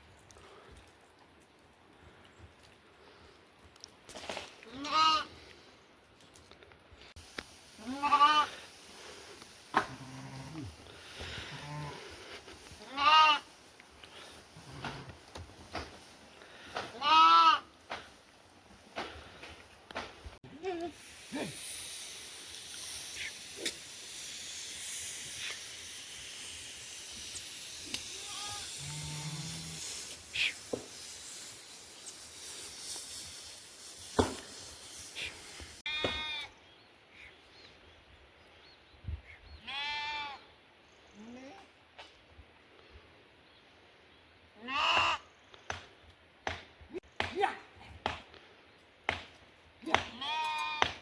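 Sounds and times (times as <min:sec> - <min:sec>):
livestock bleating: 0:04.7 - 0:05.3, 0:07.8 - 0:08.6, 0:09.8 - 0:10.7, 0:11.4 - 0:12.1, 0:12.8 - 0:13.5, 0:16.9 - 0:17.7, 0:28.2 - 0:29.8, 0:35.9 - 0:36.5, 0:39.6 - 0:40.4, 0:44.6 - 0:45.2, 0:50.1 - 0:50.9
high-pitched outdoor hiss: 0:06.8 - 0:46.2.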